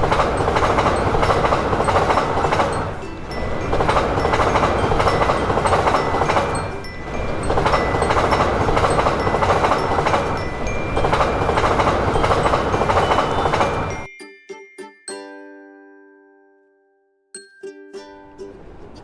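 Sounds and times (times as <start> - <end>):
train passing at speed: 0.0 - 14.1, 18.2 - 19.0.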